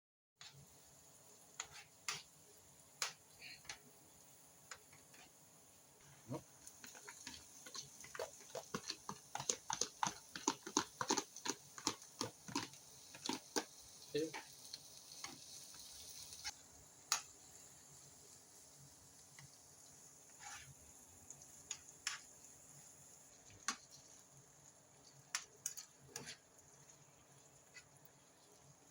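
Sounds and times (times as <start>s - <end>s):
utensils clicking against cookware: 6.7s - 13.7s, 25.3s - 26.4s.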